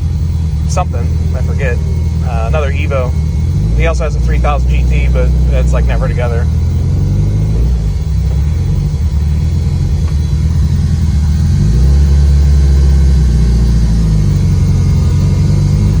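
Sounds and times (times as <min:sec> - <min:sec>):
car engine low drone: 0:00.0 - 0:16.0.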